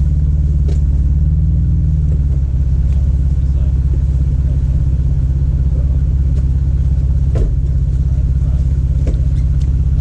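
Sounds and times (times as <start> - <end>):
vehicle engine throbbing: 0.0 - 10.0
clunk: 0.5 - 1.1, 7.2 - 7.8, 9.0 - 9.8.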